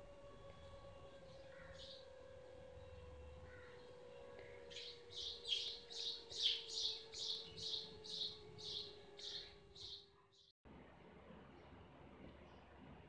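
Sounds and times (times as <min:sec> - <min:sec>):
bird chirping: 0:01.2 - 0:10.5.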